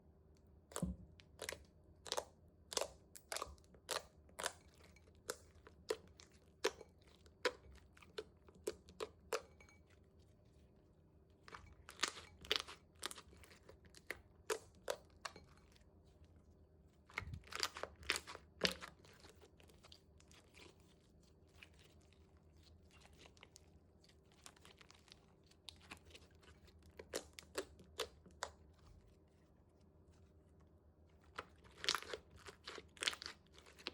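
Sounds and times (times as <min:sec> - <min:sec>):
slime clicking and crunching: 0:00.7 - 0:09.8, 0:11.5 - 0:15.5, 0:17.0 - 0:20.7, 0:24.3 - 0:28.7, 0:31.2 - 0:33.9.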